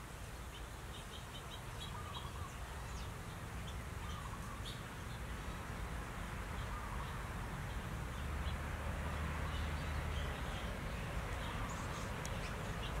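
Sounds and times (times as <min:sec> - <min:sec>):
faint bird chirps: 0:00.5 - 0:05.2.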